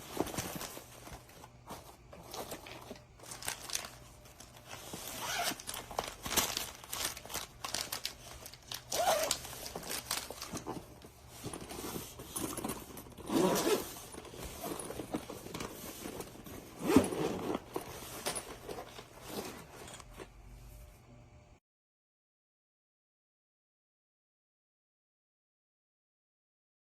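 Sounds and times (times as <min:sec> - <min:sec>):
rustling and crinkling: 0:00.0 - 0:20.9.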